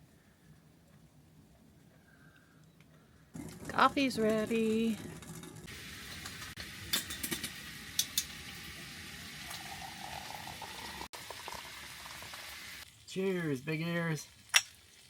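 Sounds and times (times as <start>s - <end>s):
coffee bubbling: 3.3s - 6.4s, 7.2s - 12.6s.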